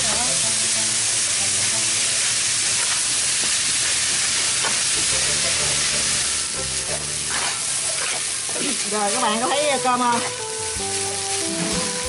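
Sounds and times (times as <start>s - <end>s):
rice sizzling in a wok: 0.0s - 12.0s
spatula scraping wok: 2.7s - 10.6s.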